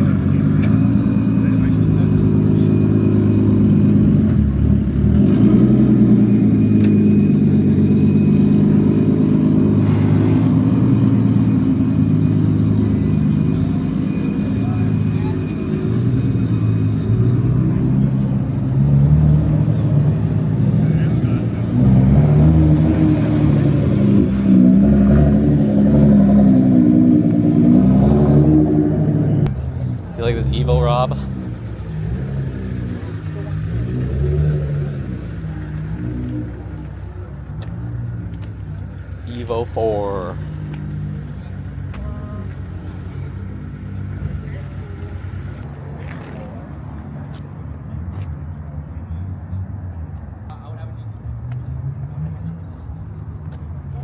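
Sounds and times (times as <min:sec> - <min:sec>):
car engine running: 0:00.0 - 0:46.2.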